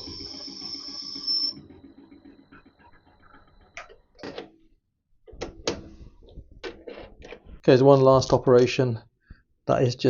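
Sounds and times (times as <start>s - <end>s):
lathe cutting whine: 0.0s - 1.8s.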